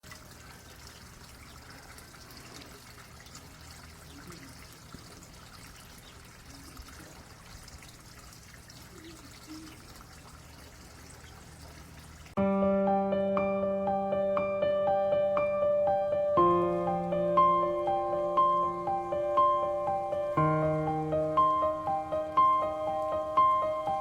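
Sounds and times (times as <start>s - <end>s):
piano music: 12.4s - 24.0s.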